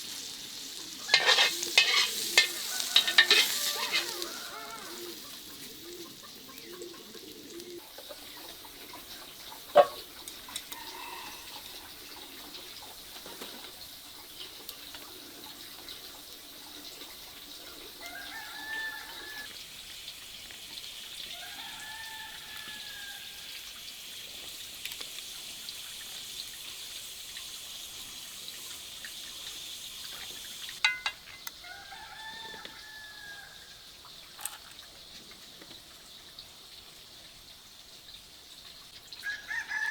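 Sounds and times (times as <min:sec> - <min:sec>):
rooster crowing: 0:01.1 - 0:05.3, 0:10.7 - 0:11.9, 0:17.8 - 0:19.5, 0:21.3 - 0:23.6, 0:31.6 - 0:33.8, 0:39.2 - 0:39.9.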